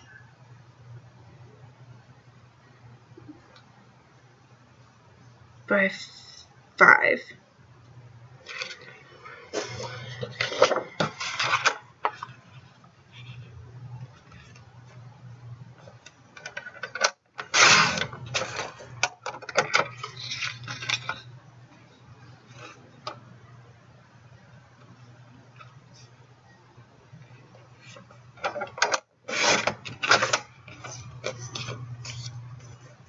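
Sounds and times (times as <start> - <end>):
faint low hum: 0.0 - 33.0
cardstock scraping and rustling: 9.6 - 14.7, 29.3 - 32.8.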